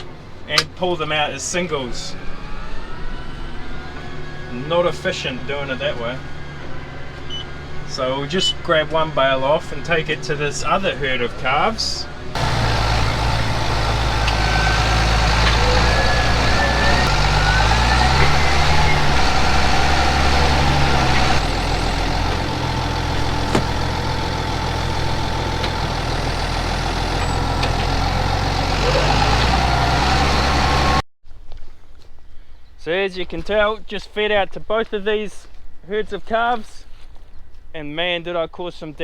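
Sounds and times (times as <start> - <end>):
tractor engine running under load: 12.3 - 31.0.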